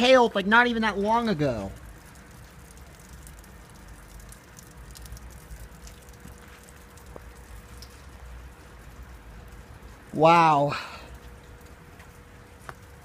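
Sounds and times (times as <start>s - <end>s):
small drip taps: 1.7s - 10.1s, 11.1s - 13.0s
rain and snow hissing: 6.2s - 12.7s.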